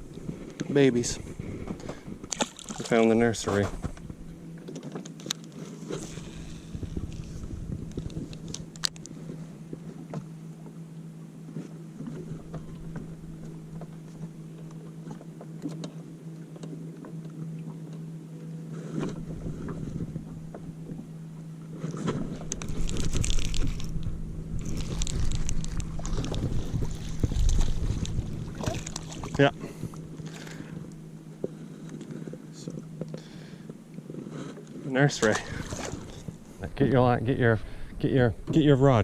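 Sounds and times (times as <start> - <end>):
boat motor humming: 0.0 - 39.0
wind buffeting microphone: 6.2 - 8.7, 22.2 - 30.1.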